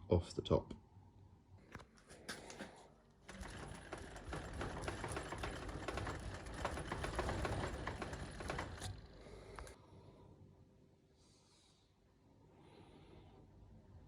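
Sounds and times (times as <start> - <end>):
tool clattering on wood: 3.4 - 9.1.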